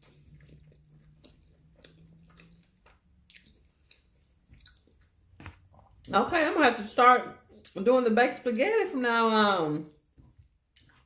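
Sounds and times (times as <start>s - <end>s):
faint chewing: 0.0s - 6.1s, 10.0s - 11.0s
low steady hum: 0.0s - 8.6s.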